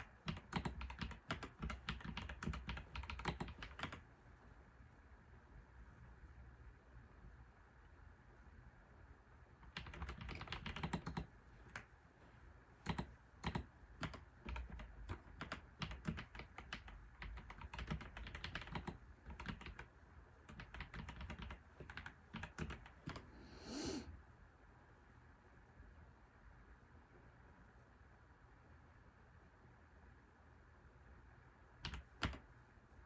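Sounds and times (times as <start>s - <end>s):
typing on computer keyboard: 0.0s - 4.1s, 9.6s - 11.9s, 12.8s - 23.3s, 31.8s - 32.5s.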